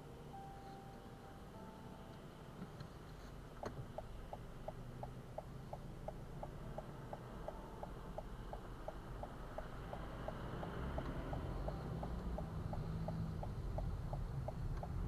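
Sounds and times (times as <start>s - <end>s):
turn signal ticking: 2.1s - 15.0s
car driving rumble: 3.0s - 15.0s.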